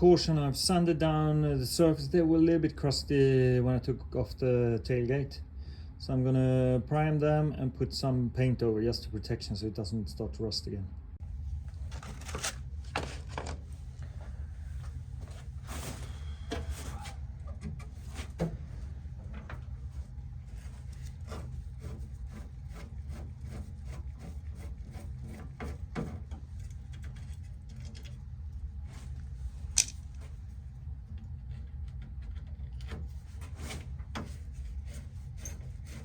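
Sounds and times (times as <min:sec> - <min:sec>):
steady low hum: 0:00.0 - 0:36.0
sharp click: 0:29.8 - 0:30.0.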